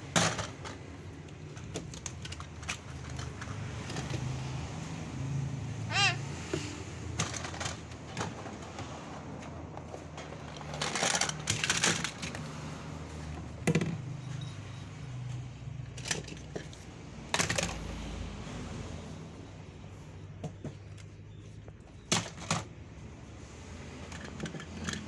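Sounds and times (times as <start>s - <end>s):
toy pieces clattering: 0.1s - 4.2s, 7.1s - 8.6s, 10.2s - 12.5s, 24.0s - 25.0s.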